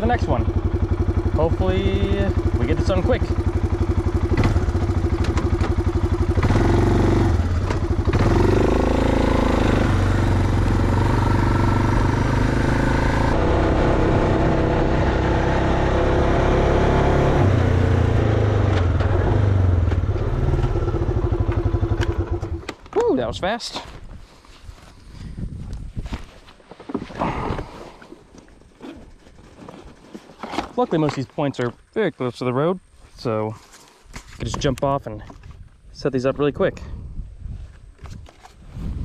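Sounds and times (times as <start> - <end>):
atv engine revving: 0.0 - 22.6.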